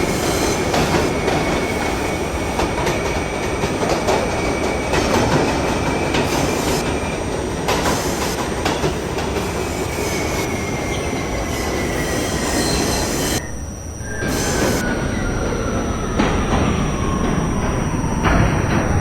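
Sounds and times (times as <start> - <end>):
high wheel squeal: 0.0 - 7.3, 9.4 - 19.0
subway train rumble: 0.0 - 19.0
rail-joint clicks: 14.2 - 19.0.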